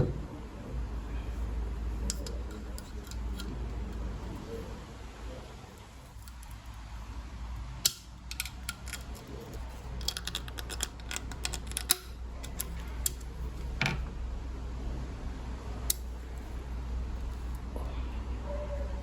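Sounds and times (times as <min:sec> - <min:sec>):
hand tools clicking and tapping: 0:07.8 - 0:13.2.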